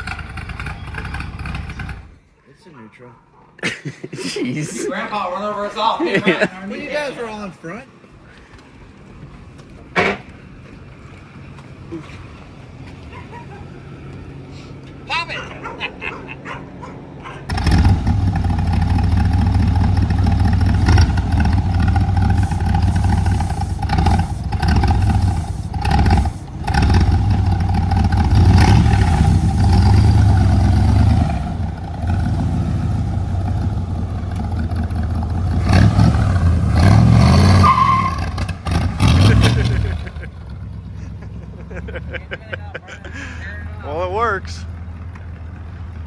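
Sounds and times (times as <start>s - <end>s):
car engine revving: 0.0s - 2.3s, 16.8s - 42.3s.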